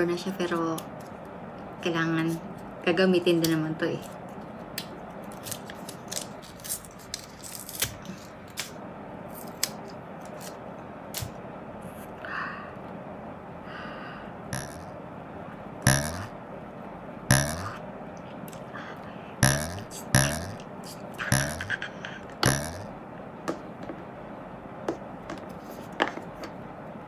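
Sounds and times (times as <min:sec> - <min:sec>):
plastic packaging clicks and scraping: 0:05.2 - 0:08.8.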